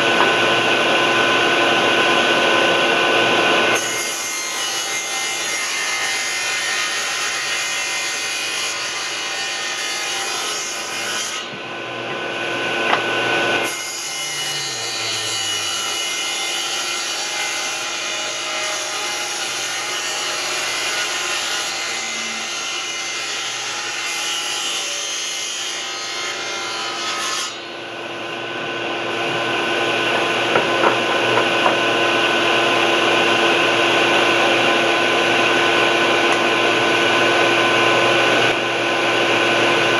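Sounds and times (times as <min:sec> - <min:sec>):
electric power tool on wood: 0:12.1 - 0:23.9.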